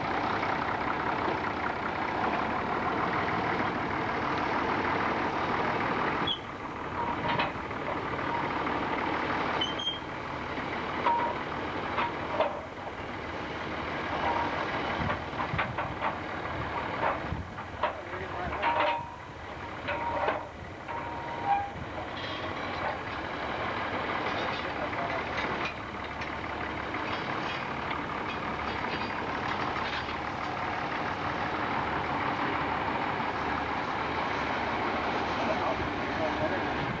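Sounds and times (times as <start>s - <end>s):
sawmill machinery running: 0.0s - 37.0s
short squeaks: 6.2s - 6.5s, 9.6s - 10.1s, 21.1s - 22.4s
clanks and knocks: 7.0s - 7.6s, 11.0s - 12.6s, 14.2s - 16.3s, 17.0s - 19.2s, 19.8s - 23.0s, 24.2s - 30.6s.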